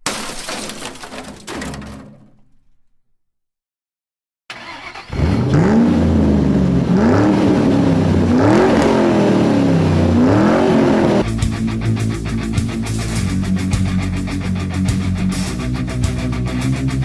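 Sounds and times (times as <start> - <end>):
car engine revving: 4.5 - 13.6
rock guitar music: 5.6 - 17.0.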